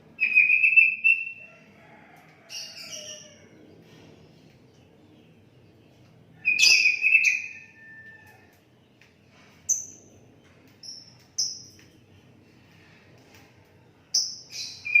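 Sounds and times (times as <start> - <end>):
bird whistling: 0.2 - 1.4.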